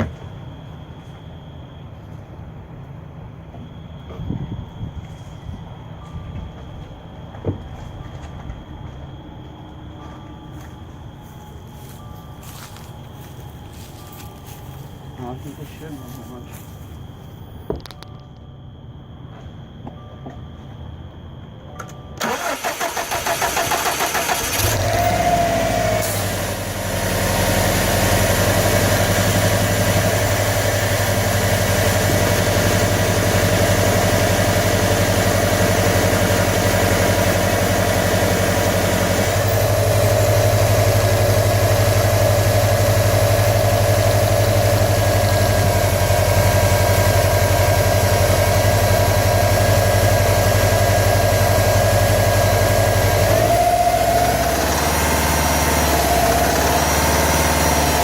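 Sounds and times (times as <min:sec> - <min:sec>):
car engine cranking and idling: 0:21.8 - 0:58.0.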